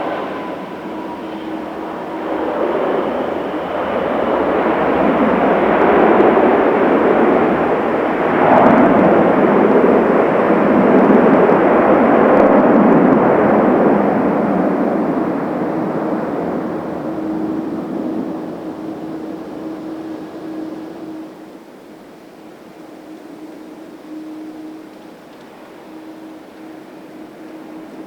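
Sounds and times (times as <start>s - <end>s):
jet airliner engine noise: 0.0s - 28.0s
faint steady hum: 15.1s - 28.0s.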